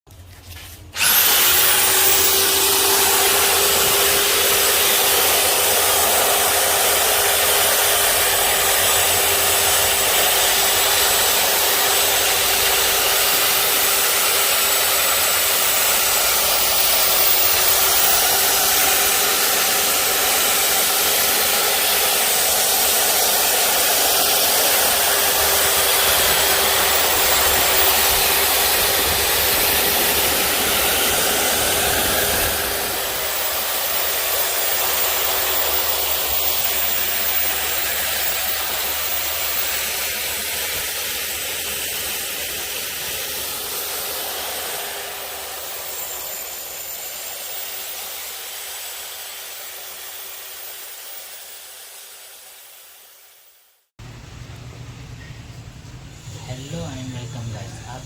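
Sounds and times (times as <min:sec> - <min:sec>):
rotary hammer motor whine: 0:00.9 - 0:53.4.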